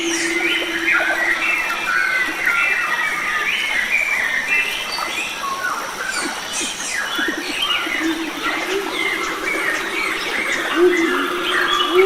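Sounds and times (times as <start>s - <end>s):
high insect drone: 0.0s - 3.8s, 6.2s - 12.0s
songbirds chirping and warbling: 0.0s - 12.0s.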